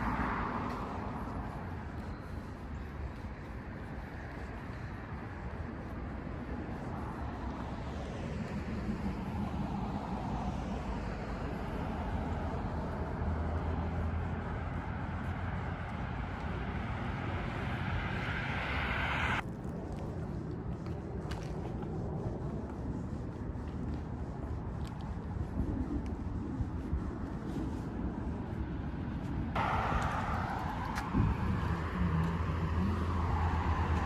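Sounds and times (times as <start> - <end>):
passing vehicles traffic noise: 0.0 - 19.4, 27.0 - 34.0.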